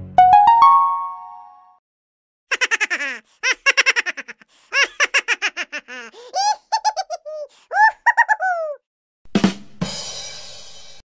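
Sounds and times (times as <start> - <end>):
high-pitched cartoon laughter: 2.5 - 8.8.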